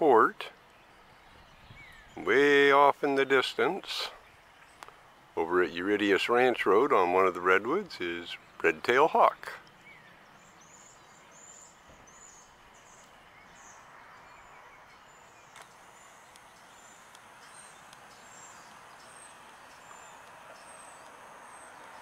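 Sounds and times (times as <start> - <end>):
steady background hiss: 0.0 - 22.0
small bird chirping: 9.6 - 22.0.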